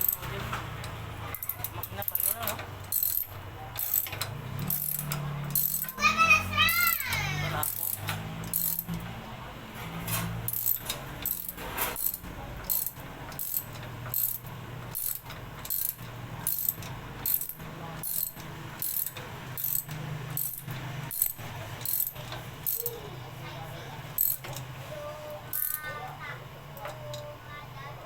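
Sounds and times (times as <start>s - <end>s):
ratchet wrench clicking: 0.0s - 6.0s, 6.7s - 9.0s, 10.5s - 23.0s, 24.2s - 24.6s, 25.5s - 25.9s.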